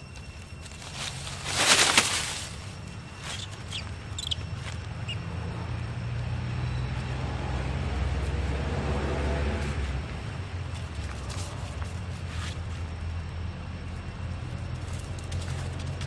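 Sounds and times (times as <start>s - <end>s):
short high squeaks: 0.0s - 5.2s
vehicle engine running: 0.0s - 16.0s.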